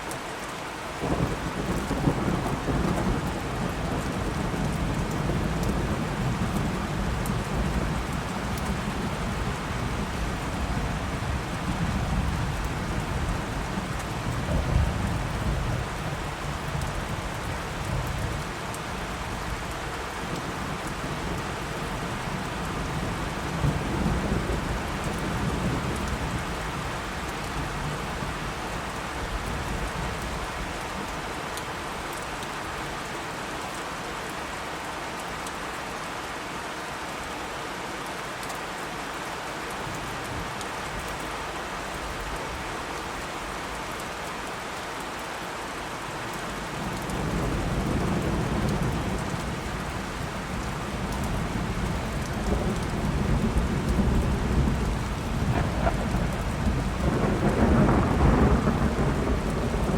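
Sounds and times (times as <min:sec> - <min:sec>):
steady rain falling: 0:00.0 - 0:59.9
low rolling thunder: 0:01.0 - 0:18.5, 0:46.8 - 0:59.9.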